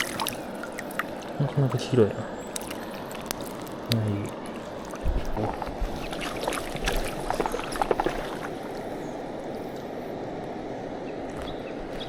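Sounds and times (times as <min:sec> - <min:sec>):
river water rushing: 0:00.0 - 0:02.1.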